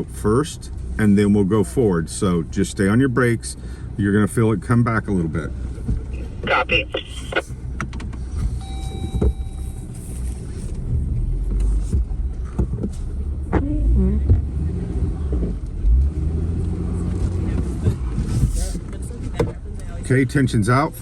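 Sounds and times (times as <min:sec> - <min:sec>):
vehicle engine running low: 0:00.0 - 0:21.0
short beep: 0:08.6 - 0:10.0.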